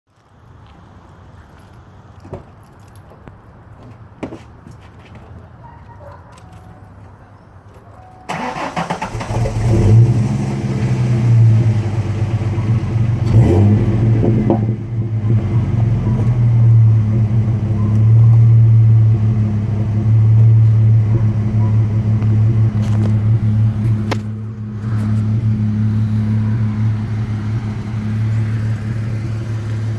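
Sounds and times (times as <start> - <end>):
car engine revving and idling: 8.3 - 29.9.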